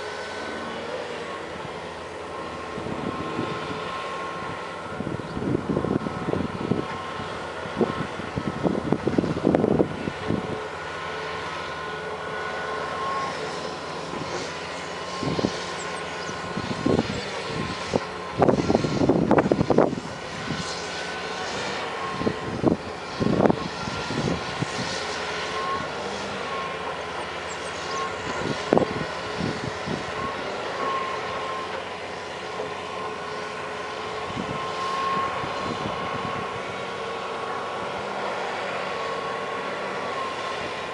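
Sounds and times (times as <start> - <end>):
excavator engine whine: 0.0 - 40.9.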